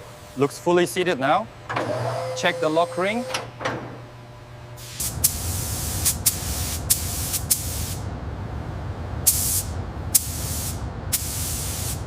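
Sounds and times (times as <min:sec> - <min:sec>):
steady low rumble: 0:04.1 - 0:12.0.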